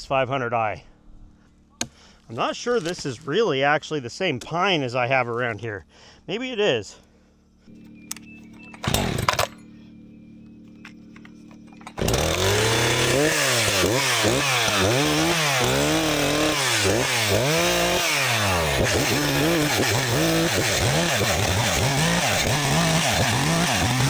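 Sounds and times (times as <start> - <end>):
chainsaw cutting wood: 7.7 - 24.0.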